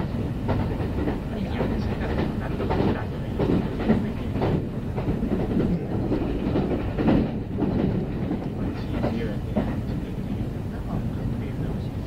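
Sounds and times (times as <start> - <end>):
wheels clacking over rail joints: 0.0 - 11.1
train rumble from inside: 0.0 - 12.0.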